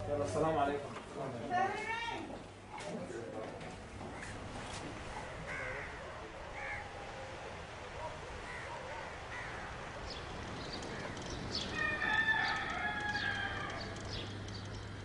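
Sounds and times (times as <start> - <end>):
rooster crowing: 11.6 - 14.2.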